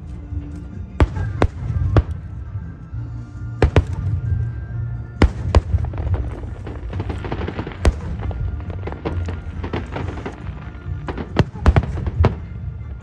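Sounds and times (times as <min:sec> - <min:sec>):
firework shells bursting: 0:05.2 - 0:12.6
crackling sparks: 0:05.2 - 0:13.0.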